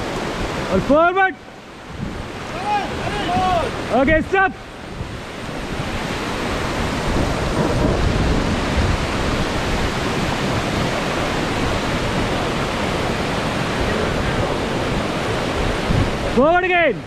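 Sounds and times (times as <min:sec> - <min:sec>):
river rapids rushing: 0:00.0 - 0:17.0.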